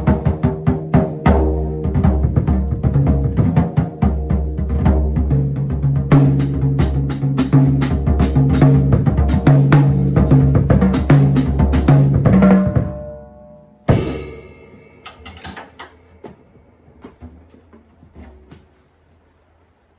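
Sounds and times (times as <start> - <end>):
music with drums and bass: 0.0 - 13.1, 13.9 - 15.4.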